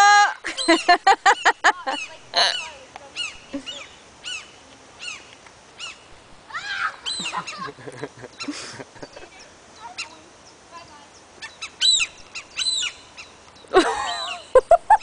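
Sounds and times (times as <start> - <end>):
seagulls alarm cries: 0.4 - 5.2, 5.8 - 8.6, 11.4 - 14.6.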